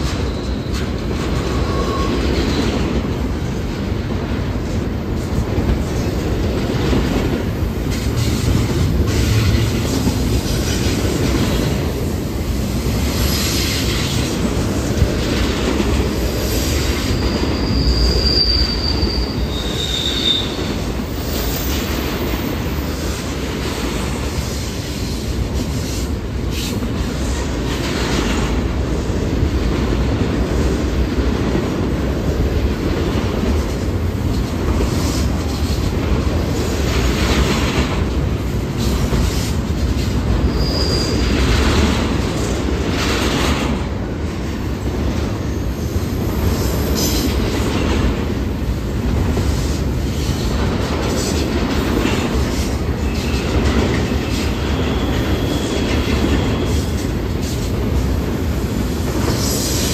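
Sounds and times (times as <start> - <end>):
freight train wheels rumbling on rail: 0.0 - 59.9
high wheel squeals: 0.1 - 2.7, 16.2 - 22.4, 40.4 - 41.4, 53.0 - 57.1.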